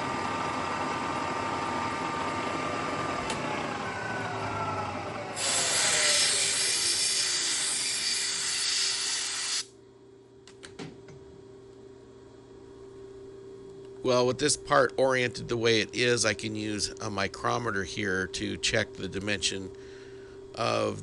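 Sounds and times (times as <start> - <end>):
milling machine running: 0.0 - 9.7
spindle and motor winding down: 2.9 - 9.7
compressed air hissing: 5.4 - 9.7
faint hum: 9.3 - 21.0.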